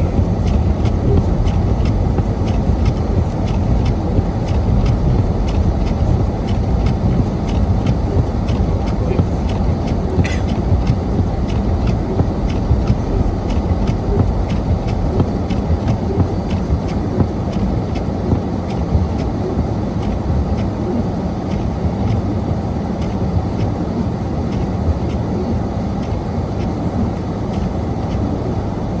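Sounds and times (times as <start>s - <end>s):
rapid even ticking: 0.0s - 20.8s
car engine and tyres rumbling: 0.0s - 23.8s.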